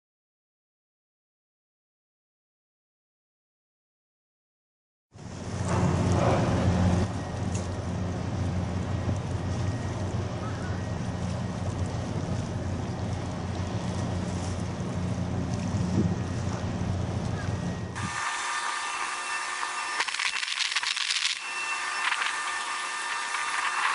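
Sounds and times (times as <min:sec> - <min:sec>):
ship engines droning: 0:05.2 - 0:20.2, 0:21.3 - 0:23.9
wind noise on microphone: 0:10.6 - 0:18.2.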